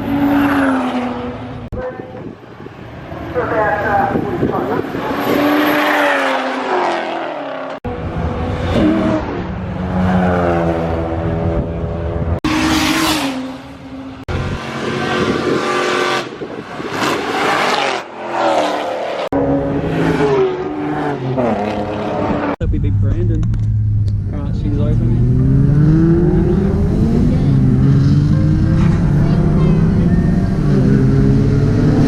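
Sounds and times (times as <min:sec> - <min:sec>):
car engine accelerating hard: 0:18.7 - 0:32.0.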